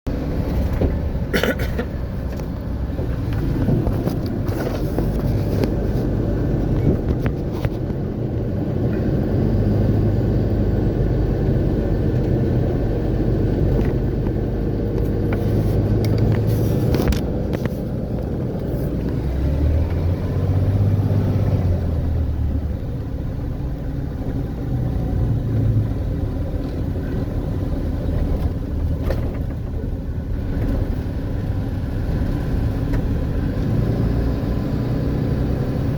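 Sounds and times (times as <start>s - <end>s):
car engine and road rumble: 0.0s - 35.9s.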